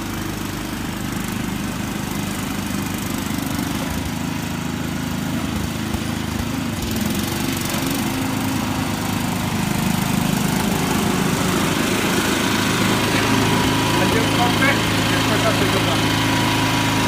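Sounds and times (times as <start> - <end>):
small engine running: 0.0 - 17.0.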